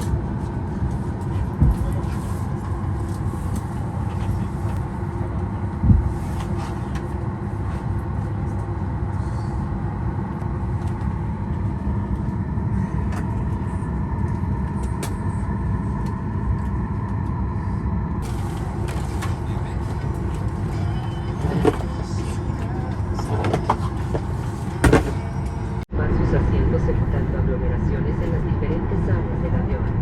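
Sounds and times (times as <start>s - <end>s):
airplane cabin hum: 0.0s - 30.0s.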